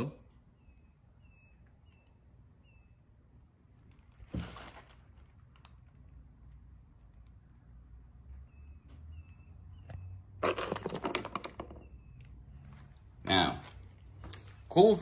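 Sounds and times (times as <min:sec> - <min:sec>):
small bird chirping: 0:00.0 - 0:03.5, 0:06.0 - 0:10.4, 0:11.6 - 0:12.7
rustling: 0:03.8 - 0:06.1.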